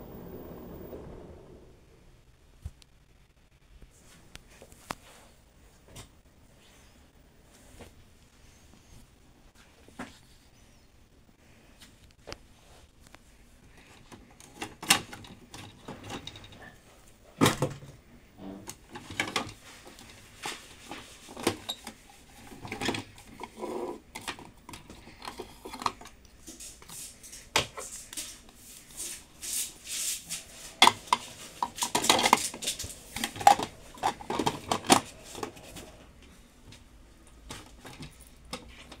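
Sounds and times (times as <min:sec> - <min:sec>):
hard objects clattering and knocking: 0:30.6 - 0:36.0.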